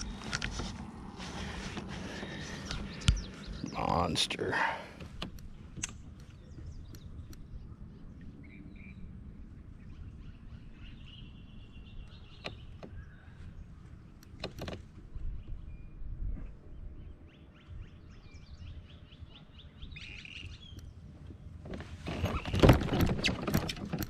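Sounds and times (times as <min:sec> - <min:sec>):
wind rumble: 0:05.0 - 0:24.0
faint bird chirps: 0:06.3 - 0:14.2, 0:15.2 - 0:21.1.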